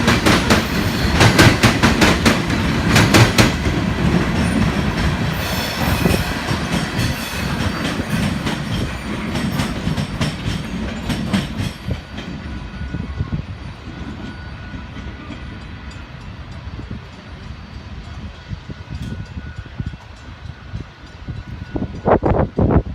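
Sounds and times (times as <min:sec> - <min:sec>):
freight train rumble: 0:00.0 - 0:22.9.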